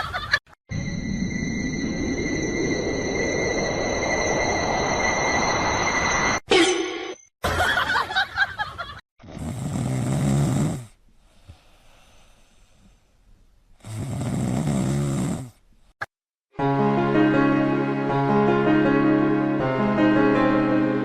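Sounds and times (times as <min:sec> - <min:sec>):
loud snoring: 0:09.2 - 0:11.6, 0:13.8 - 0:15.6.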